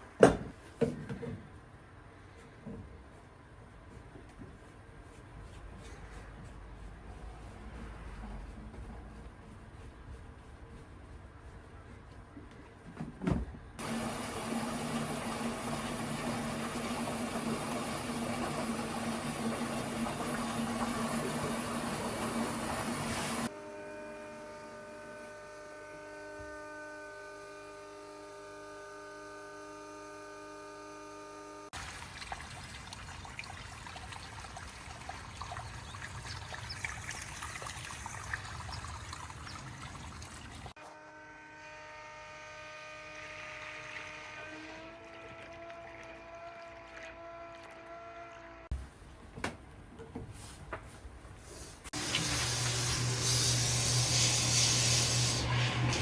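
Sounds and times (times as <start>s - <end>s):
water rushing from drain valve: 13.8s - 23.5s, 31.8s - 40.8s, 52.0s - 56.0s.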